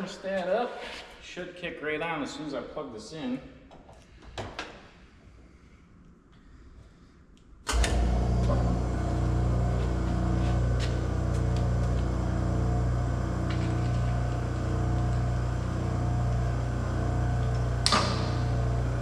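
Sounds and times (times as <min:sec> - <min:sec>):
burner motor and oil pump humming: 0:07.7 - 0:19.0.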